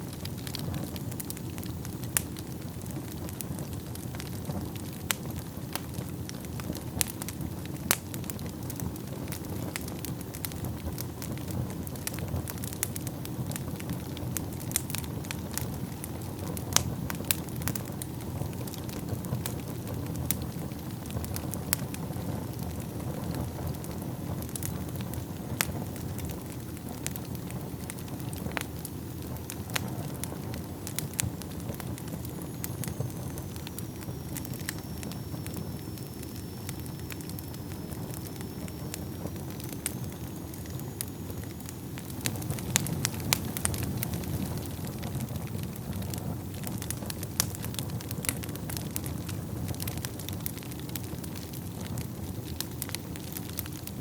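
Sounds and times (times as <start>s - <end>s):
wood fire crackling and popping: 0.0s - 54.0s
faint high whistle: 32.1s - 42.5s.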